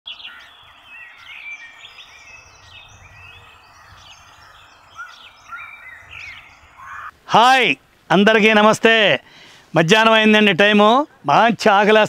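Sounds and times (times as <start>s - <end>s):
birds chirping and calling: 0.1s - 7.2s.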